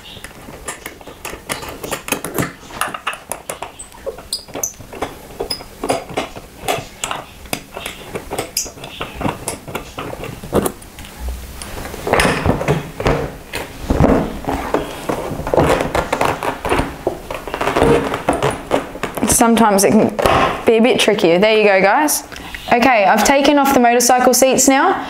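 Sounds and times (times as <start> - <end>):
knocks and rattles: 0.1 - 10.8, 12.0 - 20.8
hand tools clicking on metal: 0.1 - 11.1.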